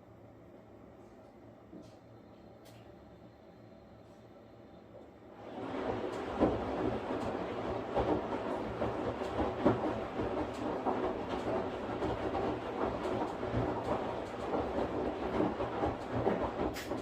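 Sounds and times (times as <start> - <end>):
washing machine drum rumbling: 5.4 - 17.0.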